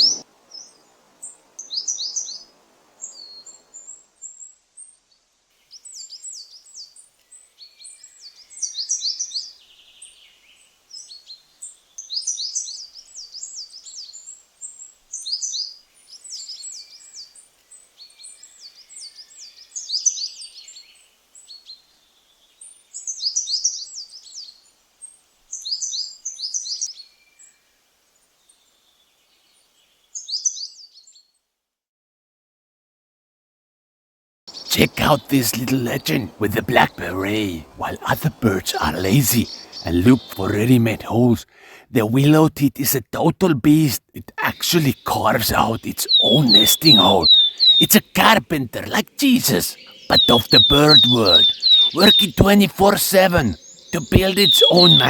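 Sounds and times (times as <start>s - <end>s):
coal tit singing: 34.5s - 55.0s.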